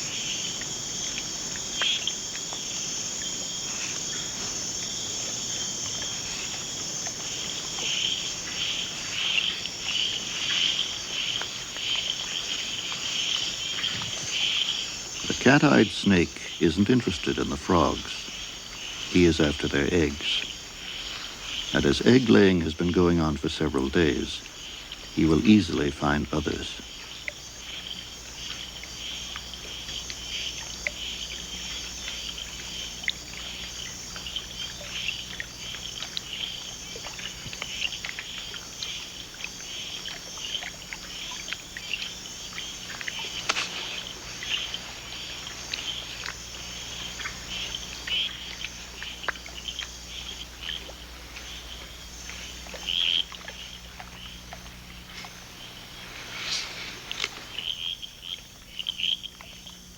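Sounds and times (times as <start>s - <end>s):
frogs and insects chirping: 0.0s - 59.9s
low steady hum: 13.6s - 59.9s.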